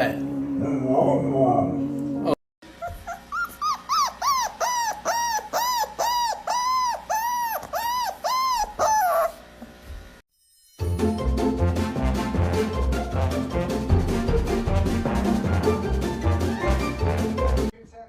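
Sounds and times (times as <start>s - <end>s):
dog whining: 2.6s - 9.5s.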